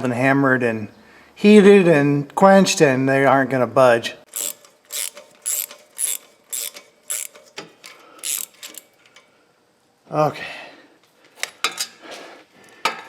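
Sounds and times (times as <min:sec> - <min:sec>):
ratchet wrench clicking: 0:04.3 - 0:09.0.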